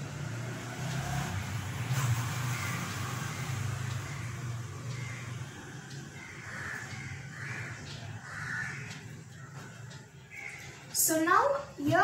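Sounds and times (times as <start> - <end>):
harsh bird calls: 2.1 - 11.8.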